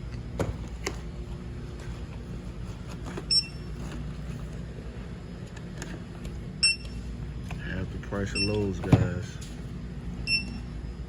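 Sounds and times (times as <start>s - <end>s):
steady low hum: 0.0s - 11.0s
barcode scanner beep: 3.3s - 3.6s, 6.6s - 7.0s, 8.3s - 8.7s, 10.2s - 10.6s.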